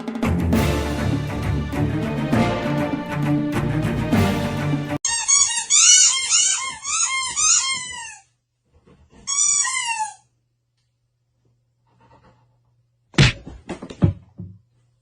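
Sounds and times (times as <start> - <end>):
small animal squeaky calls: 5.0 - 8.3.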